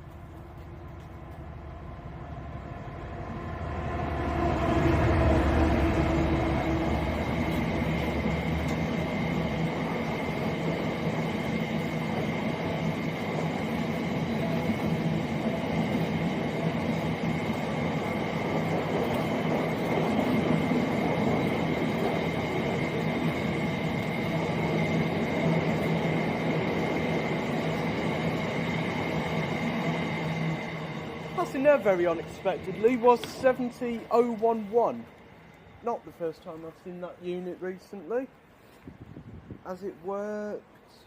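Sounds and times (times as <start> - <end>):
thin high whine: 0.0 - 38.3
freight train passing: 0.0 - 41.0.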